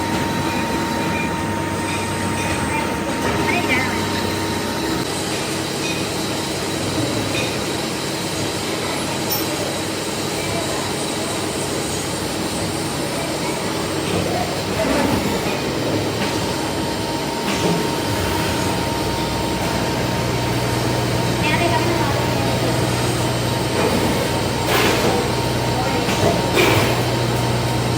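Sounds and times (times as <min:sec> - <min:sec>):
workshop machinery noise: 0:00.0 - 0:27.9.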